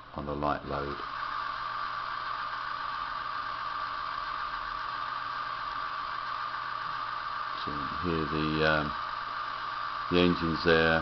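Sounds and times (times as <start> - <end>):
diesel engine through small speakers: 0.0 - 11.0.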